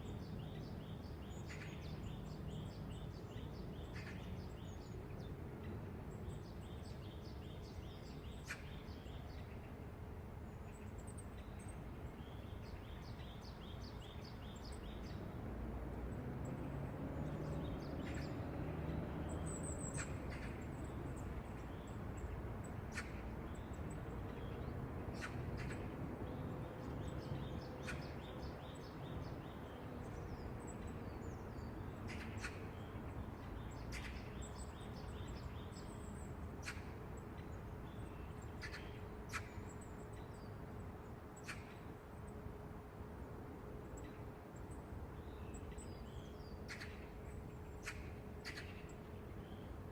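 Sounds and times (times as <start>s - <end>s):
small birds chirping: 0.0s - 9.9s, 16.5s - 42.5s, 43.9s - 49.9s
low traffic rumble: 0.0s - 49.9s
vehicle passing: 15.2s - 21.5s.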